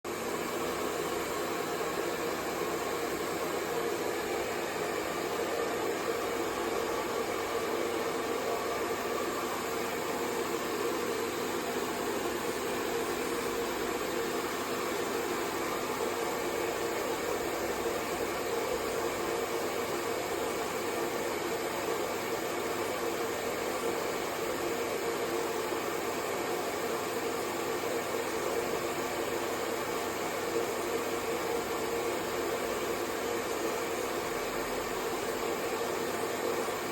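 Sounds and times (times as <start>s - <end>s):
hair dryer running: 0.1s - 21.4s.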